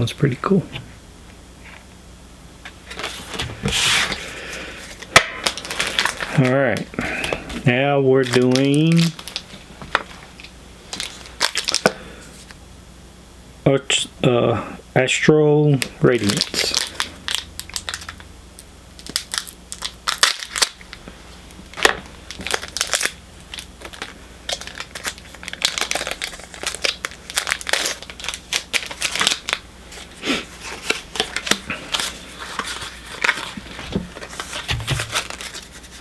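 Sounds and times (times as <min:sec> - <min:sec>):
foil wrapper crinkling: 0:02.8 - 0:12.5, 0:15.8 - 0:36.0
cards handled: 0:28.8 - 0:36.0.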